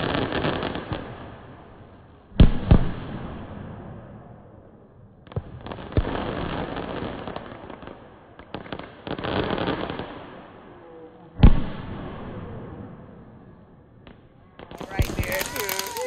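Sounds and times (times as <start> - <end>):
fireworks crackling: 0.0 - 1.3, 14.6 - 16.0
fireworks bangs: 2.4 - 4.3, 11.4 - 16.0.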